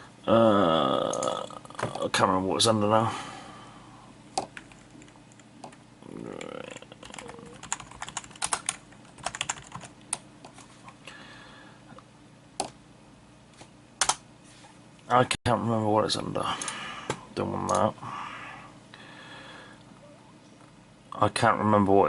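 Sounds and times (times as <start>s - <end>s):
typing on computer keyboard: 6.7s - 10.2s.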